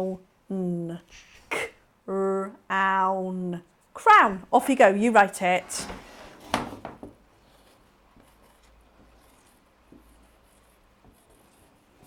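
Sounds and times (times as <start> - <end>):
pen scratching while writing: 7.4 - 12.0.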